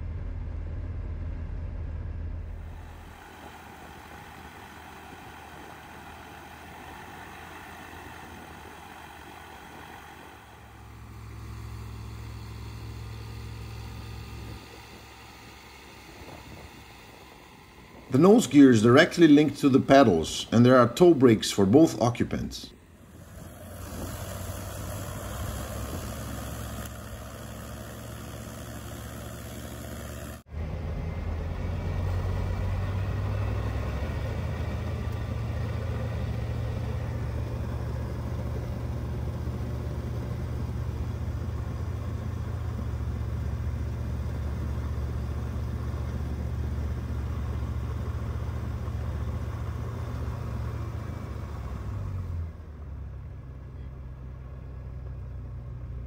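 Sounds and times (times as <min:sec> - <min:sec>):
airplane engine and propeller running: 0:00.0 - 0:56.0.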